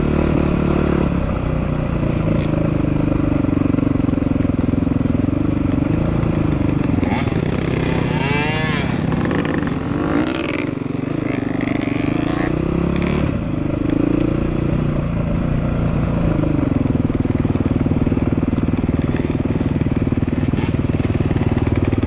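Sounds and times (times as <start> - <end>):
dirt bike engine running: 0.0 - 22.0.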